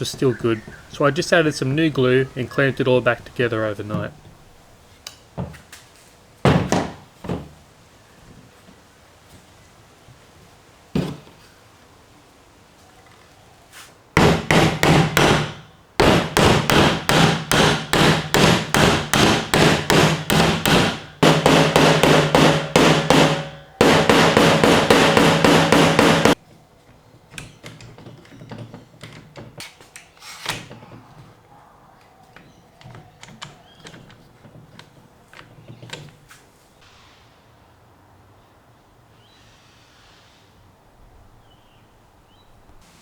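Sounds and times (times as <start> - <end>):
handling noises: 0.0 - 9.6, 12.9 - 36.8
hammer blows on wooden frame: 14.2 - 26.4.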